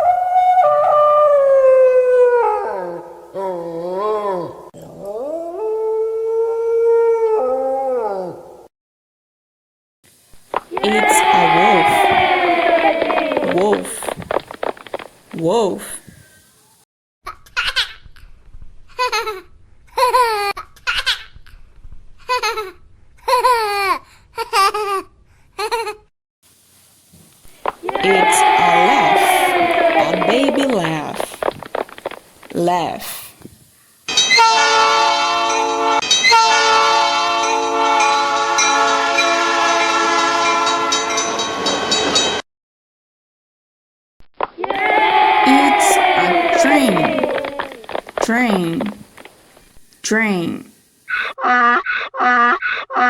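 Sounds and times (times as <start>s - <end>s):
wolf howling: 0.0s - 8.7s, 10.7s - 14.8s, 27.7s - 32.2s, 44.7s - 48.2s
baby laughing: 19.0s - 21.3s, 22.3s - 26.0s.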